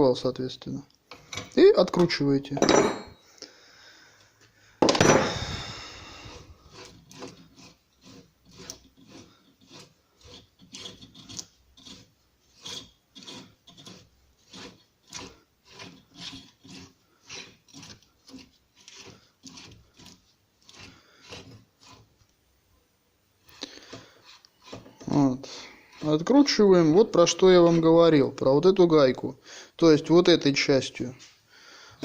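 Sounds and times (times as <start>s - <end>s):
wrench rasping on threaded nut: 6.1s - 22.1s, 23.6s - 25.2s.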